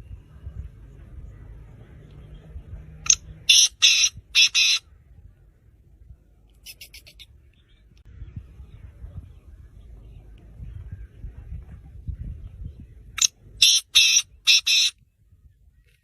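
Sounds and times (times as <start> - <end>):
francolin harsh rasping calls: 3.1 - 4.9, 13.6 - 14.9.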